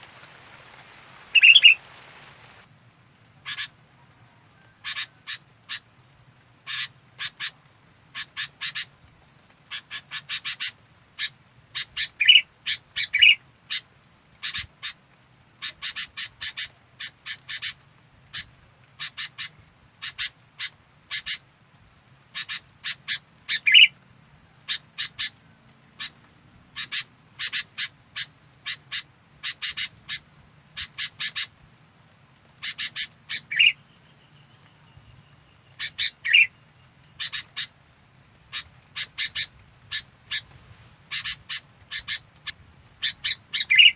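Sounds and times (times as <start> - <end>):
bulbul calling sharp notes: 1.3 - 1.8.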